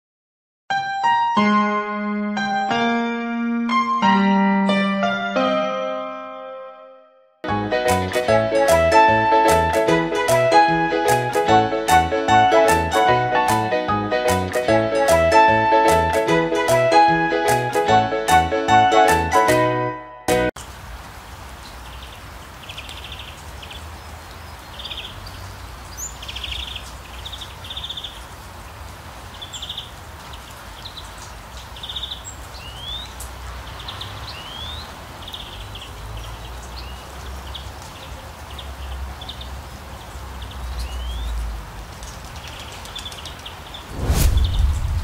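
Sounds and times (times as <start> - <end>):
songbird trilling and whistling: 32.0 - 33.1, 34.3 - 34.8, 40.9 - 41.3.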